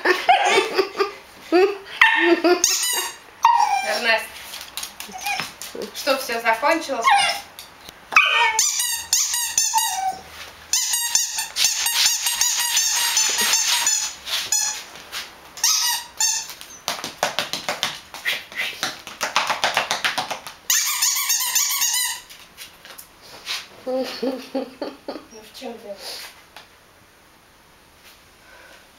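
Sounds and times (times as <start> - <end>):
dogs yelping in play: 1.9 - 4.4, 5.0 - 5.8, 7.0 - 14.8.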